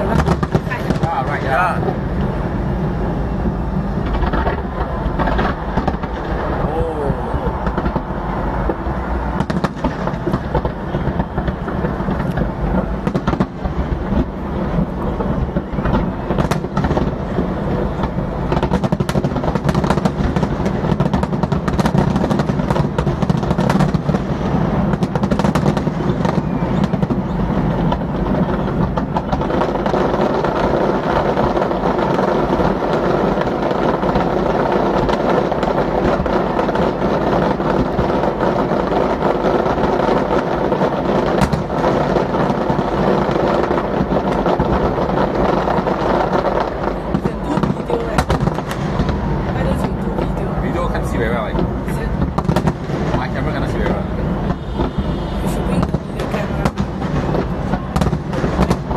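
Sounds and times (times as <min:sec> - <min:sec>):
fireworks bursting: 0:00.0 - 0:58.9.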